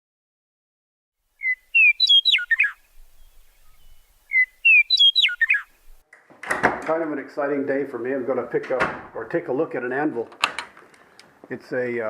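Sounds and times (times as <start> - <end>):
songbird whistling phrase: 1.4 - 6.0.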